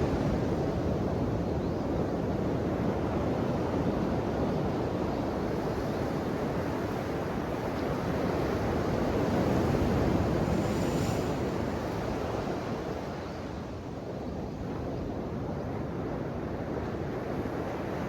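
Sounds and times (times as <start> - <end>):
ocean waves washing on shore: 6.4 - 13.8.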